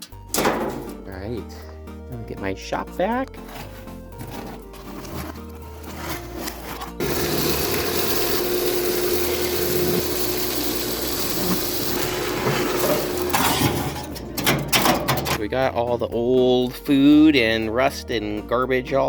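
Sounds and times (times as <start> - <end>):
shop vacuum running: 7.0 - 15.0.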